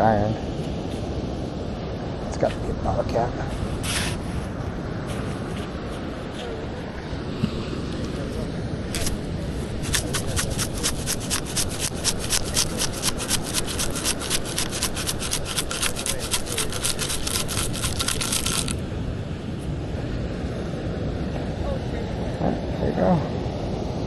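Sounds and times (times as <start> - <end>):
wind noise: 0.0 - 24.0
sand scoop shaking: 9.0 - 18.8.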